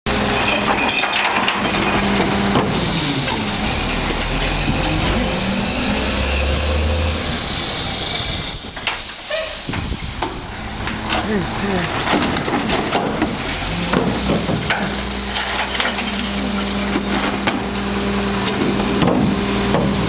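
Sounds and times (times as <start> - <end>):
truck engine running: 0.1 - 9.1, 9.8 - 20.0.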